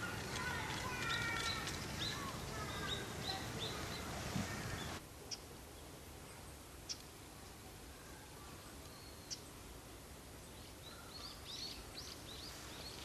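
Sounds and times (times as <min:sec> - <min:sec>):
small bird chirping: 0:00.0 - 0:07.1, 0:08.2 - 0:09.6
faint outdoor background noise: 0:00.0 - 0:13.0.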